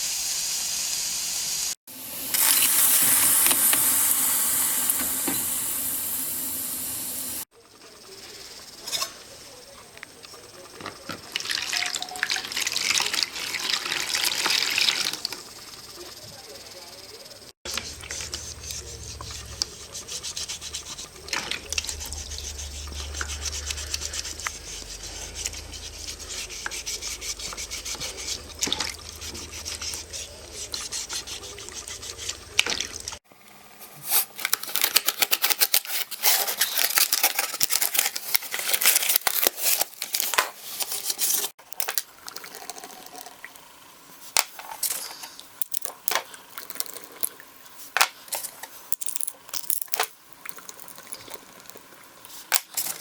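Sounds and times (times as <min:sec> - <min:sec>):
low hum: 0:17.7 - 0:33.0
rubbing and scraping strokes: 0:17.7 - 0:33.2.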